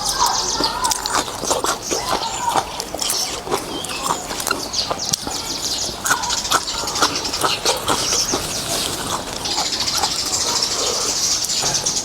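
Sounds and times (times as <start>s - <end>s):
person eating noodles: 0.0s - 11.6s
birds or insects chirring: 0.0s - 12.0s.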